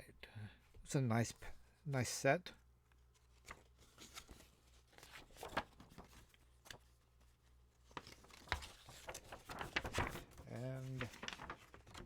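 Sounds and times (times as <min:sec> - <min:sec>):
paper rustling: 0:03.1 - 0:12.0.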